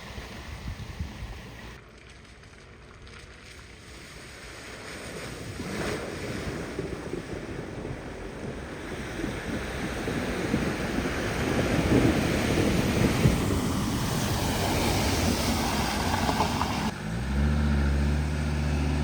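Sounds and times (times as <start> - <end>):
vehicle driving through floodwater: 3.1 - 19.0
water surging and splashing: 3.3 - 16.9.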